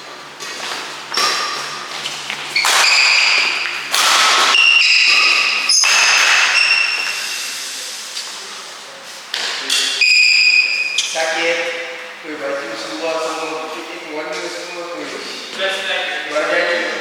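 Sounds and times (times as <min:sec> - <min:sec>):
rackets hitting shuttlecock: 0:00.4 - 0:07.3
shoes squeaking on court floor: 0:00.4 - 0:07.6, 0:09.1 - 0:11.3.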